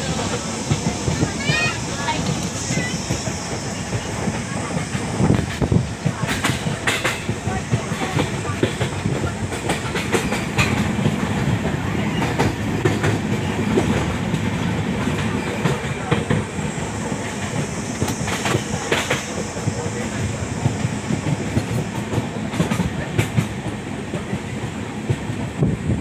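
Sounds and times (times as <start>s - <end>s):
wheels clicking over rail joints: 0.0s - 16.5s
train rumble: 0.0s - 26.0s.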